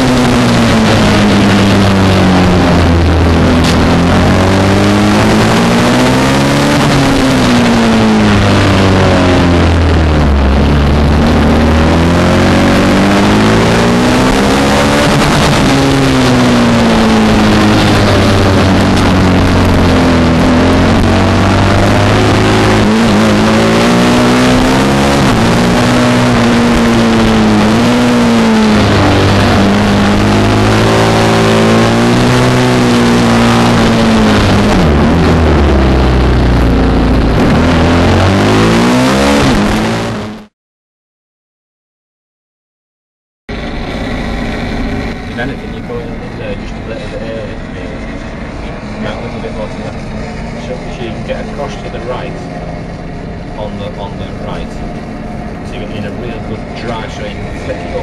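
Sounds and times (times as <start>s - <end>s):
constant rush of noise: 0.0s - 39.1s, 43.5s - 58.0s
motorcycle engine accelerating: 0.0s - 40.5s, 43.5s - 58.0s.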